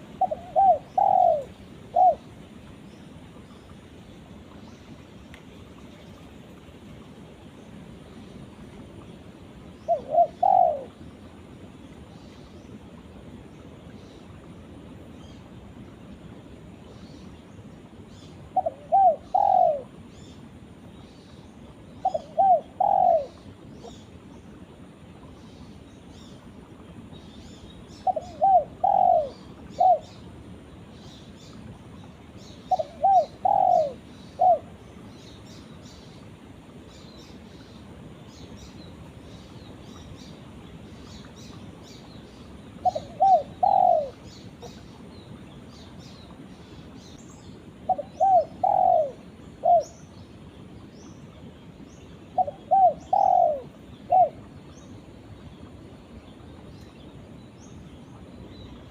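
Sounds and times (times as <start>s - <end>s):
dove cooing: 0.0s - 2.3s, 9.8s - 11.0s, 18.5s - 20.0s, 22.0s - 24.0s, 28.0s - 30.2s, 32.7s - 34.8s, 42.8s - 44.8s, 47.9s - 50.0s, 52.4s - 54.5s.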